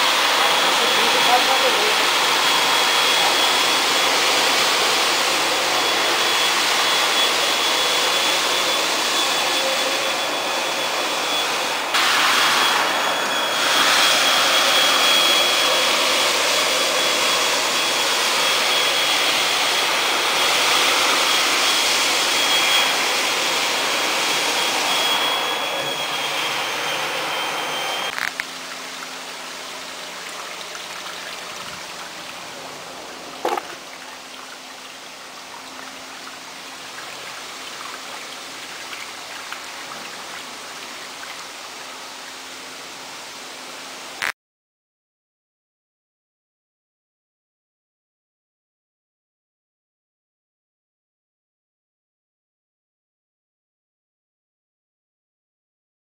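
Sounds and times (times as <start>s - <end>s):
floor scrubber motor whining: 0.0s - 41.4s.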